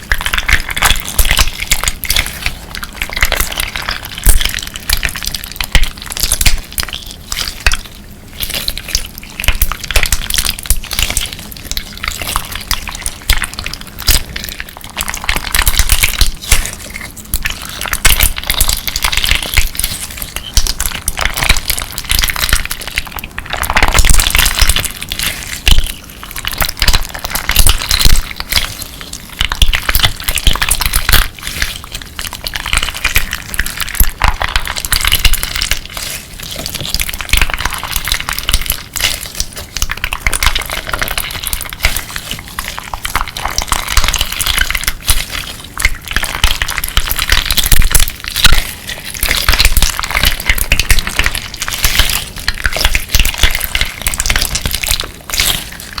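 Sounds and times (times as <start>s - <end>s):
crunchy slime crackling: 0.0s - 56.0s.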